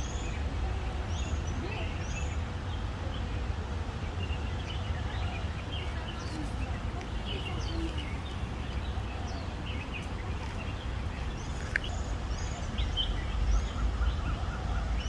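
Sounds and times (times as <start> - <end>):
small birds chirping: 4.2 - 15.0.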